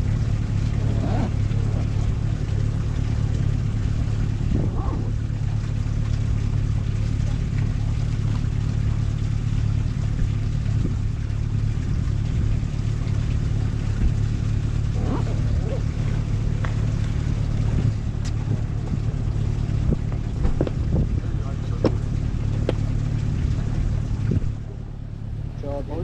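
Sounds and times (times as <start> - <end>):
vehicle engine drone: 0.0 - 26.0.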